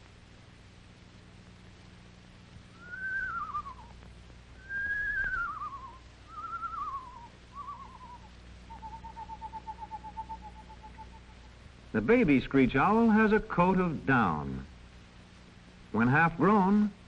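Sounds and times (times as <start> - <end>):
owl level trill: 2.7 - 4.0, 4.6 - 11.6
owl quavering whistles: 2.8 - 4.0, 4.6 - 11.6.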